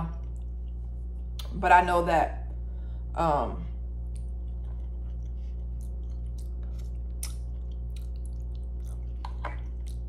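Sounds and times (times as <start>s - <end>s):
steady low hum: 0.0s - 10.0s
person chewing: 4.0s - 10.0s
wet mouth clicks and smacks: 5.8s - 10.0s.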